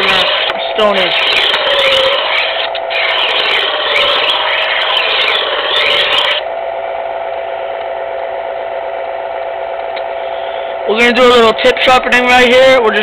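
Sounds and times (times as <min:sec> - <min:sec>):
knife blade grinding on stone: 0:00.0 - 0:06.4
knife sharpener motor hum: 0:00.0 - 0:06.5.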